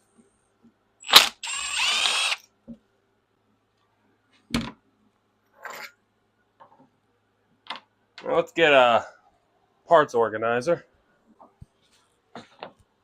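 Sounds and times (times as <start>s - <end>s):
power tool running: 1.0s - 2.4s.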